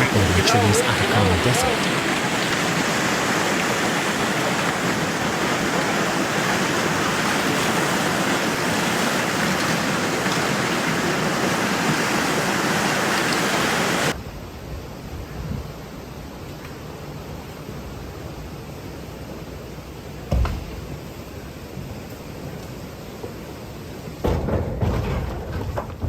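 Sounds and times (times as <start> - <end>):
flood water rushing: 0.0 - 14.2.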